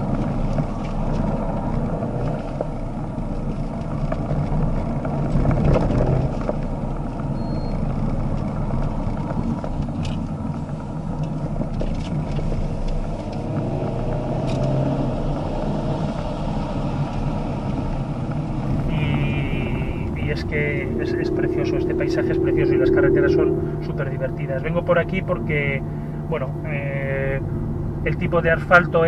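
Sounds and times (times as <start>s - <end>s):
car engine revving: 7.9s - 29.0s.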